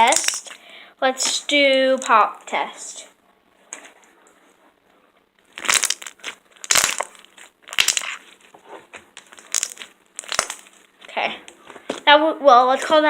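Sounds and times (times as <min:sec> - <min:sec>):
slime popping and crackling: 0:00.0 - 0:00.6, 0:05.4 - 0:08.5, 0:09.1 - 0:11.2.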